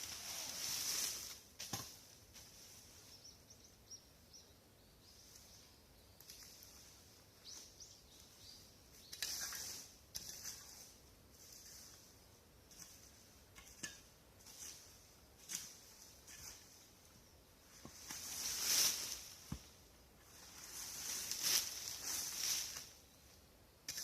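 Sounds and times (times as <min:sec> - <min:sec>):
dry brush and leaves rustling: 0:00.0 - 0:03.8, 0:05.0 - 0:24.0
faint bird chirps: 0:02.8 - 0:09.8.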